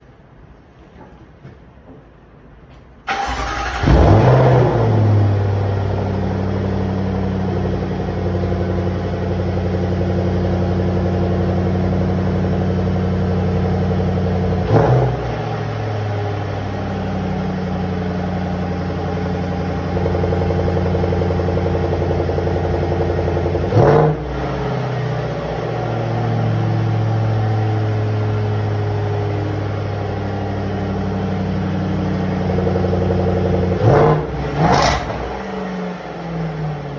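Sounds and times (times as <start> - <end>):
car engine starting and idling: 2.8 - 36.9
engine throttle blips: 3.1 - 30.3.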